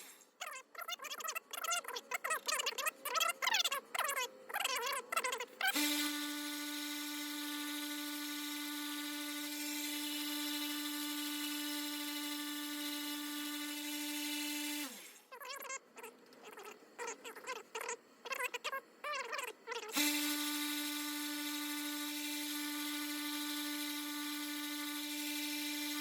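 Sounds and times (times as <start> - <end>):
belt sander whining: 5.7 - 15.2, 19.9 - 26.0.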